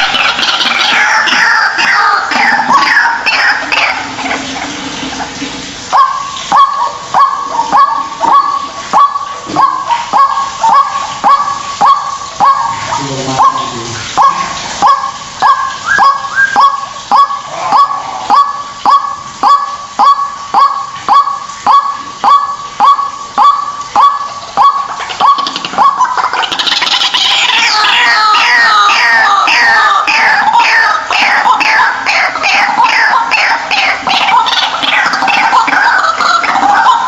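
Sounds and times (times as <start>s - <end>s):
overlapping bird calls: 0.0s - 37.0s
waterhen honking call: 0.0s - 37.0s.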